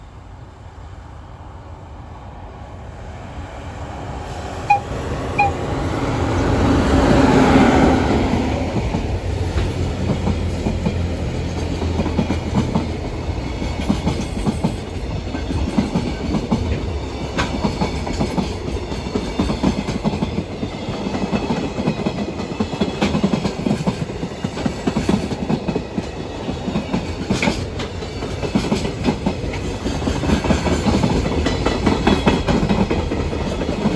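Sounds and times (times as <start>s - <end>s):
electric locomotive passing: 0.0s - 33.9s
locomotive whistle toots: 4.7s - 5.6s.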